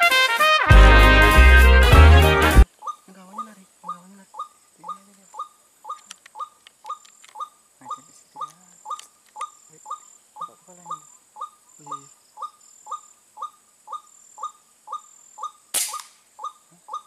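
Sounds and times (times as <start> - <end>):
waterhen calling: 2.6 - 17.0.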